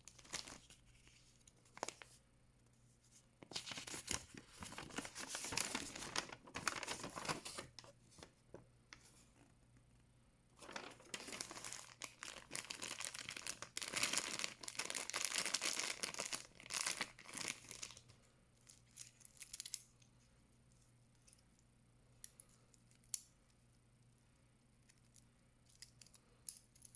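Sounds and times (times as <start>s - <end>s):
packaging crinkling and tearing: 0.0s - 0.8s, 3.5s - 7.9s, 10.6s - 18.0s.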